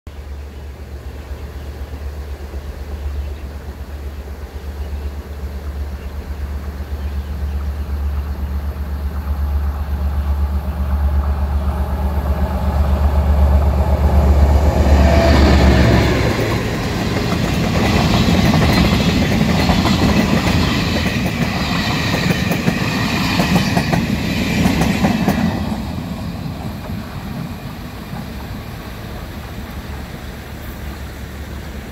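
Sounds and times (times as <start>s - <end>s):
diesel locomotive drone: 0.1s - 31.9s
train wheels clacking over rail joints: 15.0s - 27.4s.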